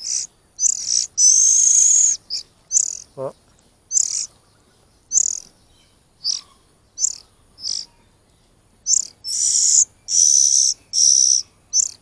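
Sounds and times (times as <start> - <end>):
chicks chirping: 0.0 - 3.3, 3.9 - 4.4, 5.1 - 5.5, 6.2 - 8.0, 8.8 - 12.0
harsh rasping bird calls: 0.0 - 12.0.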